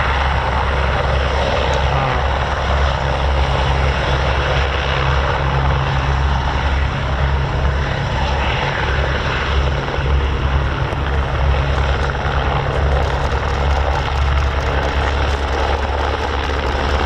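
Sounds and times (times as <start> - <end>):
helicopter rotor and turbine roar: 0.0 - 17.0.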